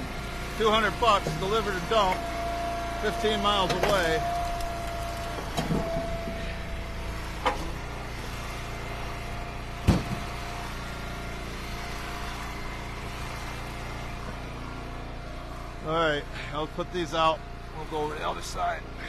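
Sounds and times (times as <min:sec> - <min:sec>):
wood splitter engine running: 0:00.0 - 0:19.0
firewood splitting knocks: 0:09.8 - 0:10.3.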